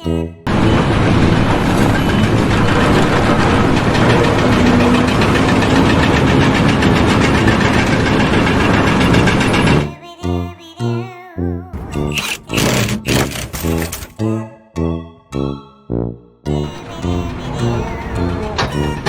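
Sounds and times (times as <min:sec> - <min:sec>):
machine engine pulsing: 0:00.5 - 0:10.0, 0:11.8 - 0:14.2, 0:16.5 - 0:19.0.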